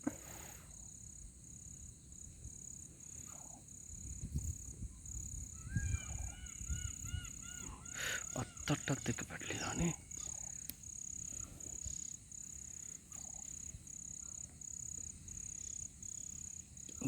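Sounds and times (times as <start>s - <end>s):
high pulsing insect drone: 0.1s - 17.0s
bird call notes: 5.6s - 10.7s.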